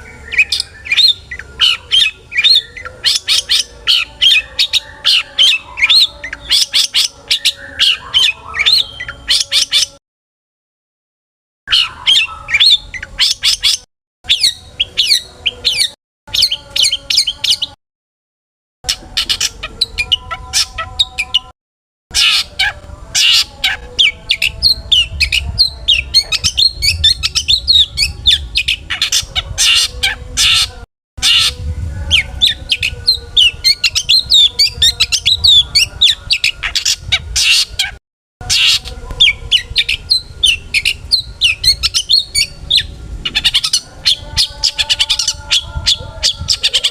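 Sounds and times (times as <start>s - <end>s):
bird singing sharp chirps: 11.7s - 17.8s.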